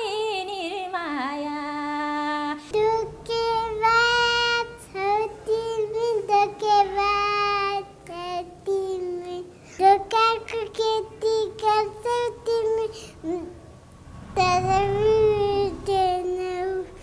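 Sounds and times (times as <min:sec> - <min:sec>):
woman singing in a high voice: 0:00.0 - 0:13.5.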